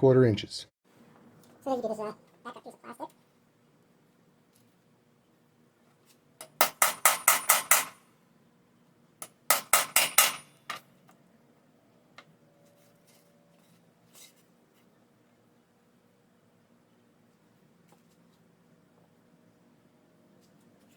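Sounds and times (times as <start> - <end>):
hammer striking metal punch: 6.4 - 8.0, 9.2 - 10.8.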